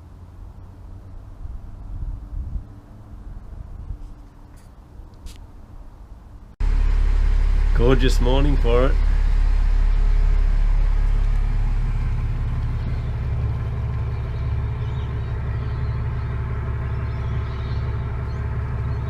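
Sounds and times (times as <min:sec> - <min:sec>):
boat engine humming: 0:06.6 - 0:19.0.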